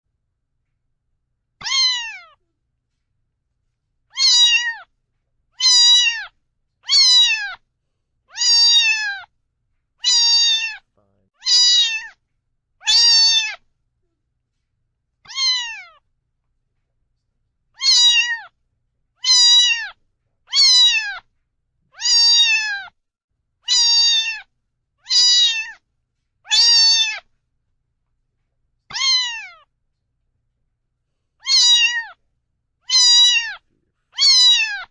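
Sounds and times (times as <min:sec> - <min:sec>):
cat meowing: 0:01.6 - 0:02.5, 0:04.1 - 0:04.9, 0:05.6 - 0:07.6, 0:08.3 - 0:09.3, 0:10.0 - 0:10.8, 0:11.4 - 0:12.2, 0:12.8 - 0:13.7, 0:15.2 - 0:16.0, 0:17.8 - 0:18.6, 0:19.2 - 0:21.3, 0:21.9 - 0:23.0, 0:23.6 - 0:25.8, 0:26.4 - 0:27.3, 0:28.9 - 0:29.7, 0:31.4 - 0:32.2, 0:32.8 - 0:34.9.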